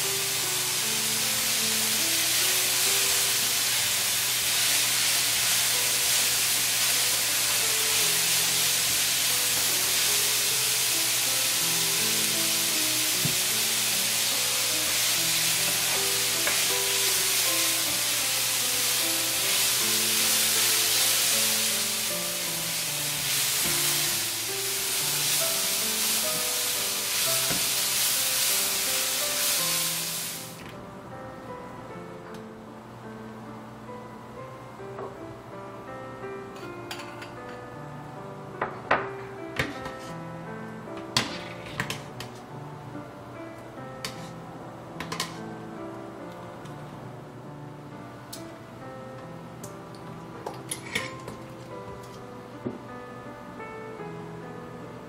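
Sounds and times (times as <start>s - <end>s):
zucchini sizzling in frying pan: 0.0s - 30.6s
background music: 0.0s - 55.0s.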